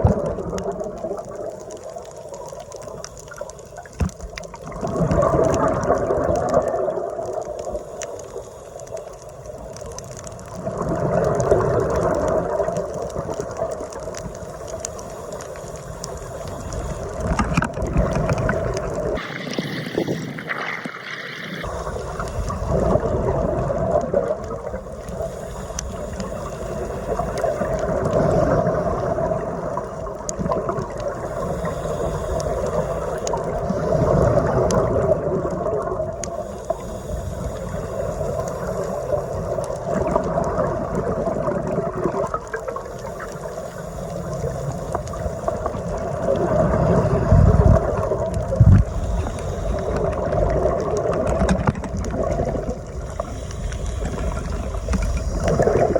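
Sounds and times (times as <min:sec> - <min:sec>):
muffled underwater rushing water: 0:00.0 - 0:55.9.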